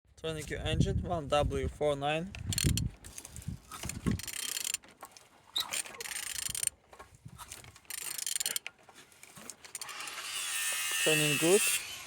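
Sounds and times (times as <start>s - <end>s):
ratchet wrench clicking: 2.5s - 2.9s, 3.8s - 4.8s, 6.0s - 6.7s, 7.9s - 8.7s.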